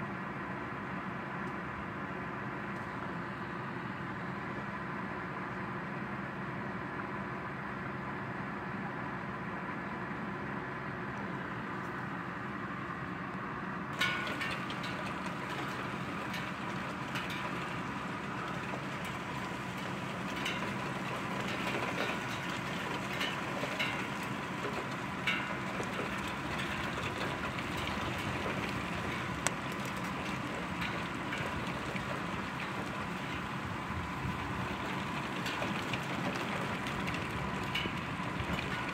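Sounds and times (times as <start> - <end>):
raindrops tapping on surfaces: 14.0 - 38.9.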